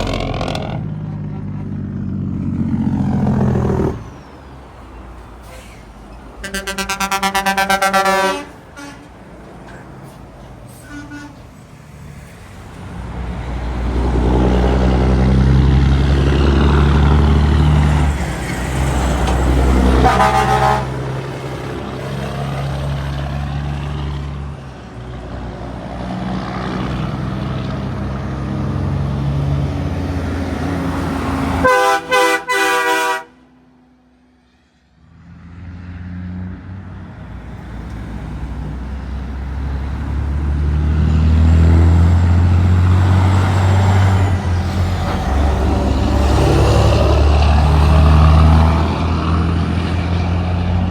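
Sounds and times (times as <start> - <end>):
trucks passing on highway: 0.0 - 50.9
truck horn blasts: 6.4 - 9.2, 10.8 - 11.5, 19.7 - 21.2, 31.4 - 33.5.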